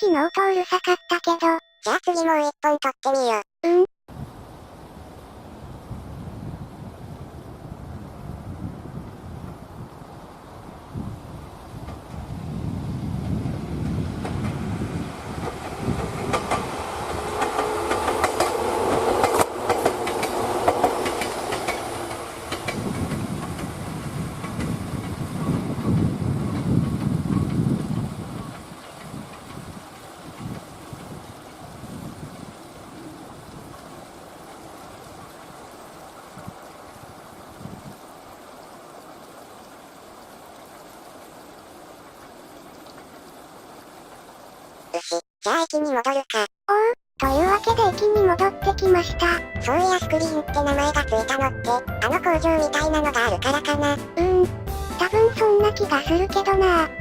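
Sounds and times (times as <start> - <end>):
train rumble: 4.2 - 36.4
running water rushing: 14.1 - 25.6, 26.7 - 45.0
train wheels clicking over rail joints: 15.4 - 31.2.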